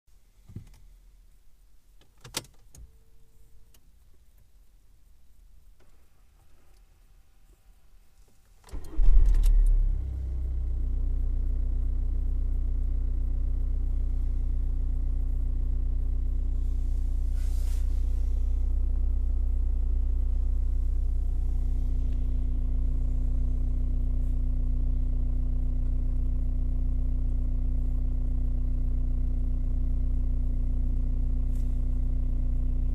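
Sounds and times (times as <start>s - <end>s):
diesel car engine starting: 8.6s - 32.9s
engine idling: 8.7s - 32.9s.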